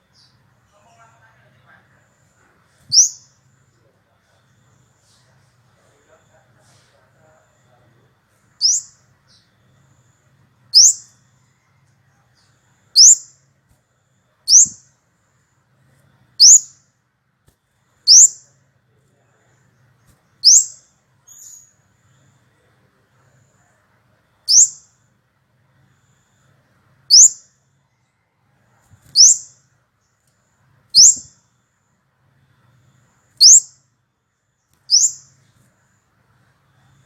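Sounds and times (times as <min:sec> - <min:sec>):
bird giving high rising call: 0:31.0 - 0:31.2.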